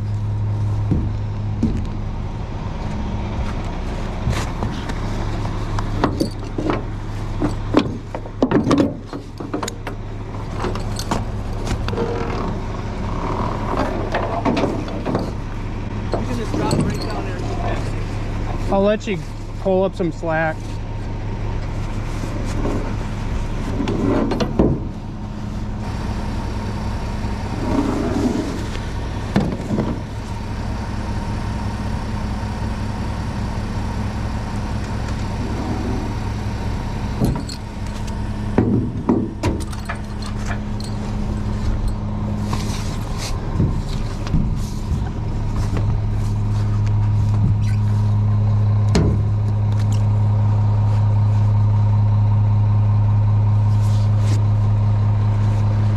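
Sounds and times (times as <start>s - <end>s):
truck diesel engine running: 0.0s - 55.9s
metallic clanks and knocks: 6.0s - 12.6s, 13.7s - 15.4s, 16.1s - 17.9s, 23.8s - 25.0s, 37.2s - 41.1s, 48.9s - 49.4s.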